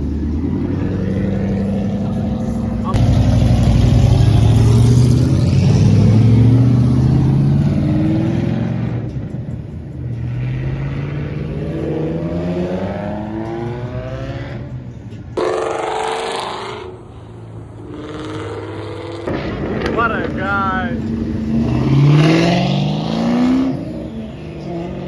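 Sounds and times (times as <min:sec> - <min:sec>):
car engine accelerating: 0:00.0 - 0:09.2, 0:15.4 - 0:20.4
second louder engine: 0:00.0 - 0:25.0.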